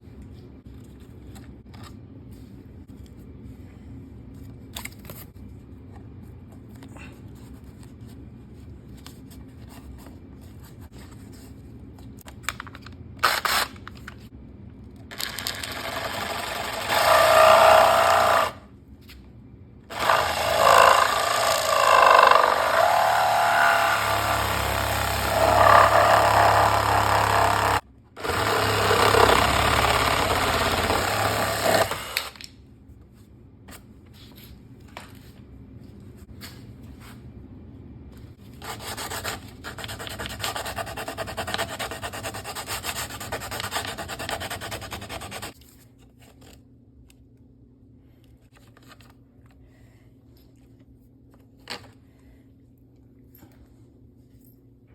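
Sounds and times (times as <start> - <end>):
power tool cutting metal: 19.9 - 32.3.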